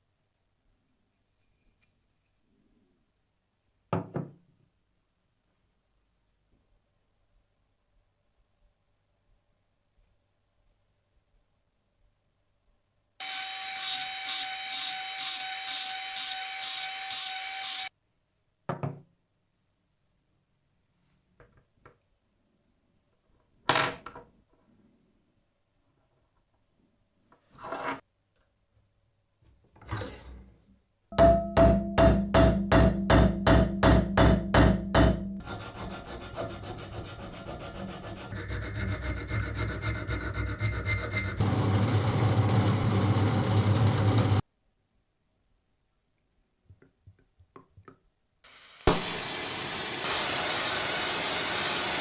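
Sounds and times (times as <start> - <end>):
rubbing strokes on metal parts: 35.0 - 41.4.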